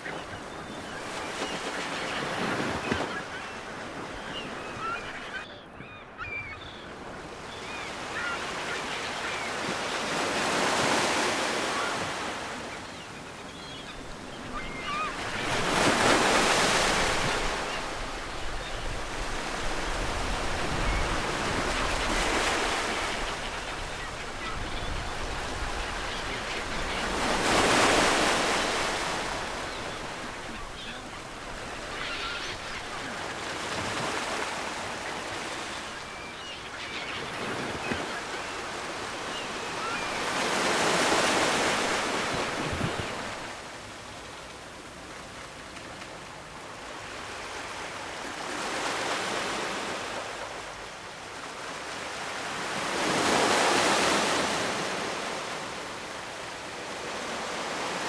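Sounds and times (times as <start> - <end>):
bird calls: 0.0 - 43.6
ocean waves: 0.0 - 58.0.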